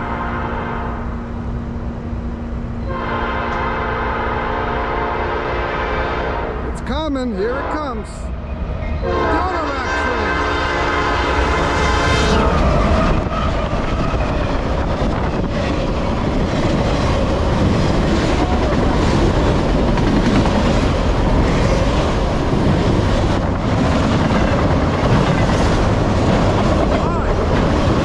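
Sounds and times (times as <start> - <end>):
diesel locomotive passing: 0.0 - 28.0
freight cars rumbling past: 5.6 - 28.0
wheels clacking over rail joints: 12.6 - 28.0.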